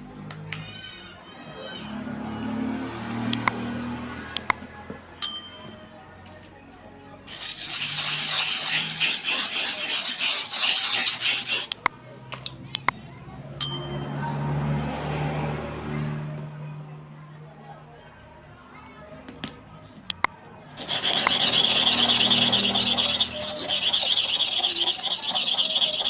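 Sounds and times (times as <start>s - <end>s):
ringing metallic ding: 5.2s - 5.9s, 13.6s - 14.2s
metal scraping on abrasive surface: 7.3s - 11.8s, 20.8s - 26.0s.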